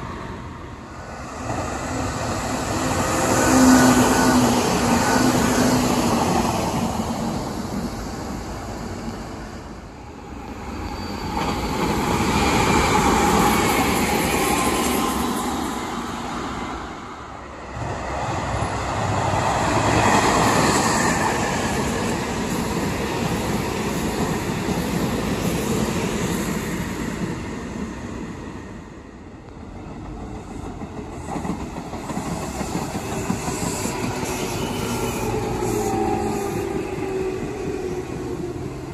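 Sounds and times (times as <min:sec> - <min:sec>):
electric trains running past: 0:00.0 - 0:38.9.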